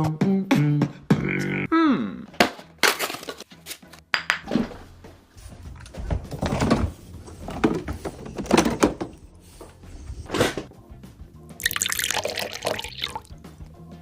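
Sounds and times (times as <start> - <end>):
objects knocking and thudding: 5.8 - 9.2.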